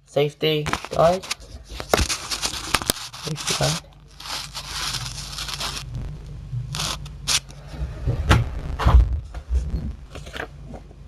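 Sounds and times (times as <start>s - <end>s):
paper rustling: 0.7s - 5.9s, 6.7s - 7.6s.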